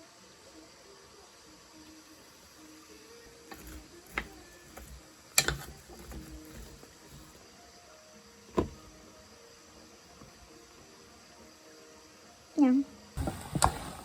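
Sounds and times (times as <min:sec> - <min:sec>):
faint insect sounds: 0:00.0 - 0:14.0
kitchenware knocking and clattering: 0:03.5 - 0:07.4.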